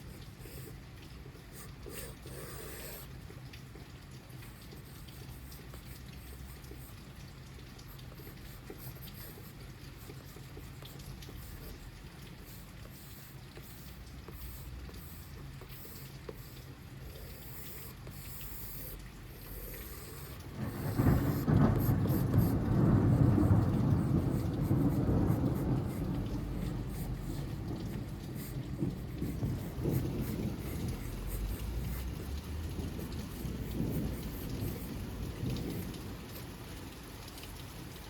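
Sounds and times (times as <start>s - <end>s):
steady rain: 0.0s - 38.0s
thunder rolling: 20.1s - 36.5s.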